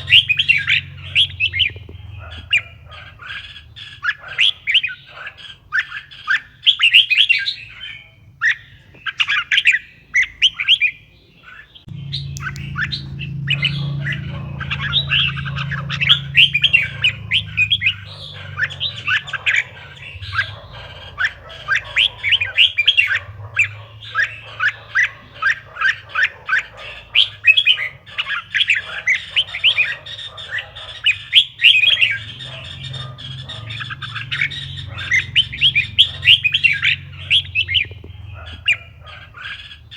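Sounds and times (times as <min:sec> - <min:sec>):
birds chirping: 0:00.0 - 0:39.9
steady low hum: 0:11.9 - 0:24.7.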